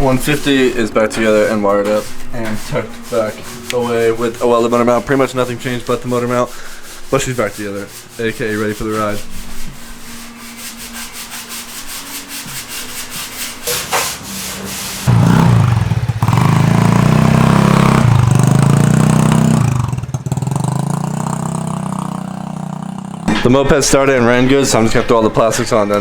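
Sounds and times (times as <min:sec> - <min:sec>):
scooter engine starting and idling: 0:14.6 - 0:23.3.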